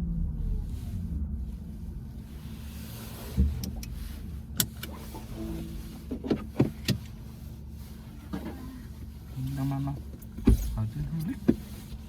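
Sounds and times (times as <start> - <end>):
low road rumble: 0.0 - 12.0.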